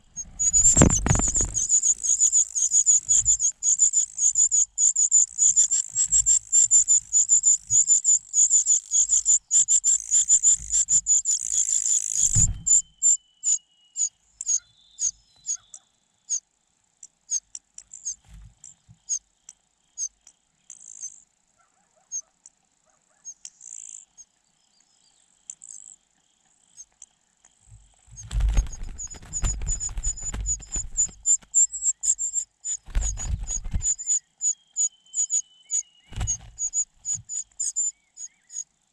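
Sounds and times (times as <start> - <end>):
low rustling thumps: 0.0 - 1.8, 12.2 - 12.8, 27.7 - 31.6, 32.9 - 34.0, 36.1 - 37.3
nestling birds chirping: 0.0 - 16.4, 27.6 - 38.7.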